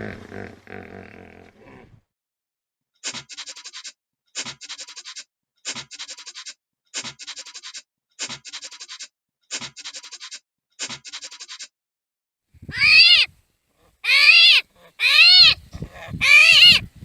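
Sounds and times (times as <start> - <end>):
rasping animal call: 12.7 - 16.9.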